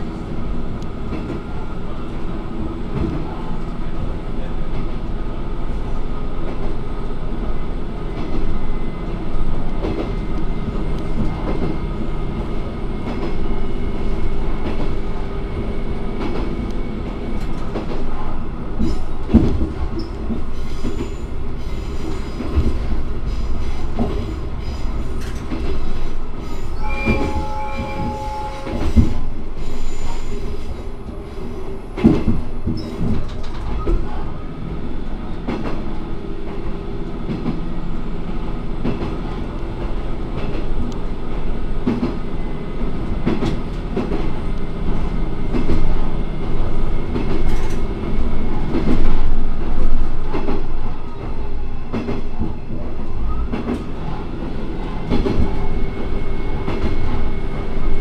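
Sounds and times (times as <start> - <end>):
diesel railcar engine: 0.0 - 58.0
wheels rumbling on rail: 0.0 - 58.0
brief pitched tone: 26.7 - 29.2.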